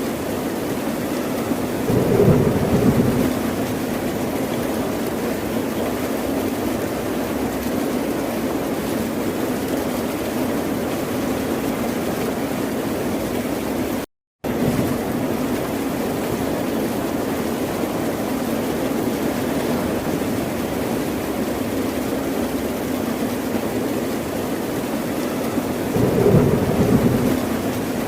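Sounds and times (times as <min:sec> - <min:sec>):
ocean surf: 0:01.9 - 0:04.8, 0:25.5 - 0:28.0.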